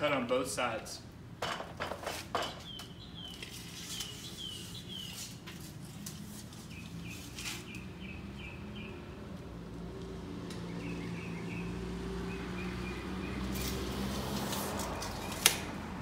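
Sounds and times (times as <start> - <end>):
songbird singing: 2.4 - 5.5, 6.5 - 15.5.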